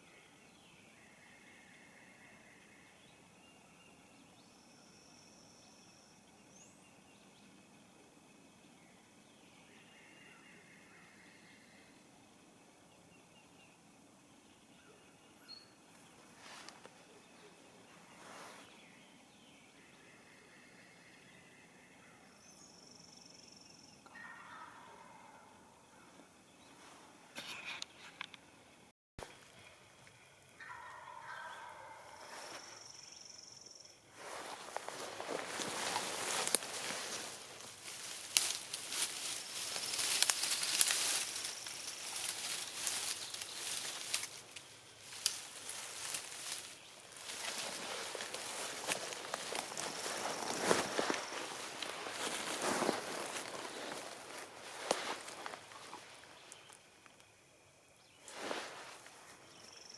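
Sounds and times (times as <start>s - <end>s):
distant bird calls: 12.6s - 28.6s, 29.3s - 57.1s
rustling: 34.2s - 56.8s, 58.2s - 59.4s.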